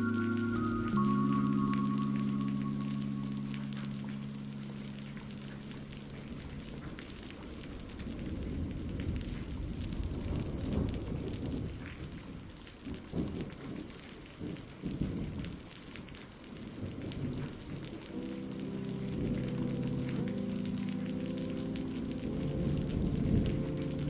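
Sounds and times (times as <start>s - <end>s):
song held notes: 0.0s - 7.4s, 18.1s - 24.0s
rolling thunder: 0.0s - 15.7s, 21.8s - 24.0s
steady rainfall: 0.0s - 24.0s.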